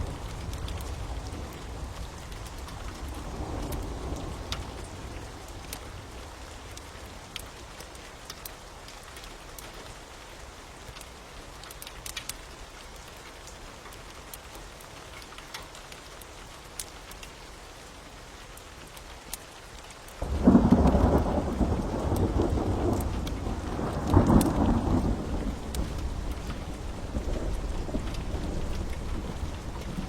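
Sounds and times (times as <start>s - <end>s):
low rumble of thunder: 0.0s - 7.0s, 20.2s - 30.0s
fire crackling: 0.0s - 7.5s, 20.2s - 30.0s
steady rain: 0.0s - 30.0s.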